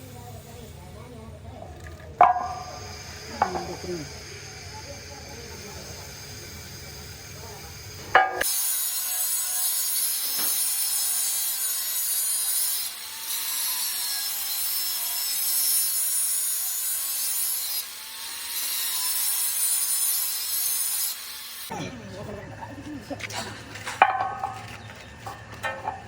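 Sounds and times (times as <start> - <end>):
power tool scraping metal: 2.2 - 21.7.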